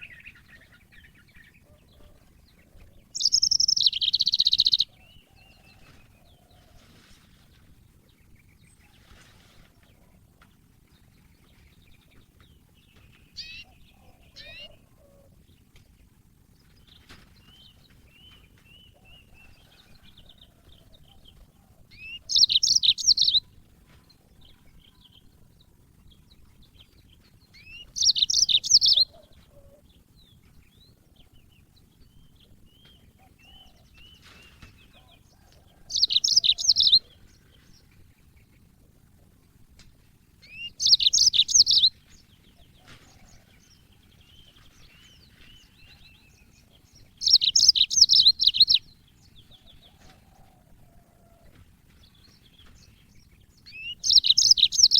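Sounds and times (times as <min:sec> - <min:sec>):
canary twittering song: 0:00.0 - 0:06.2, 0:11.2 - 0:15.7, 0:16.8 - 0:23.6, 0:24.3 - 0:38.8, 0:40.4 - 0:50.2, 0:52.0 - 0:54.9
soft bird chirps: 0:27.5 - 0:38.8, 0:40.4 - 0:51.4, 0:52.0 - 0:54.9.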